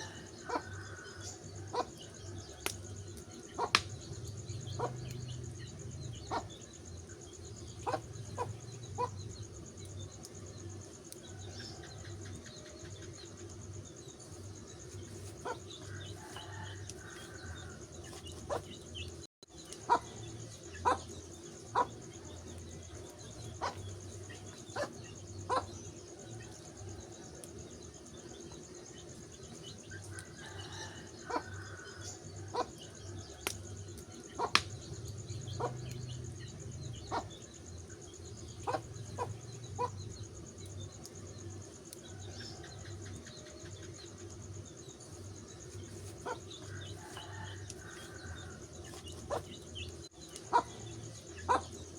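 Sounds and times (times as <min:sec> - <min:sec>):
wood fire crackling: 0:01.1 - 0:25.2, 0:33.2 - 0:42.3, 0:42.9 - 0:51.3
sharp fire pops: 0:03.7 - 0:04.3, 0:34.4 - 0:35.0.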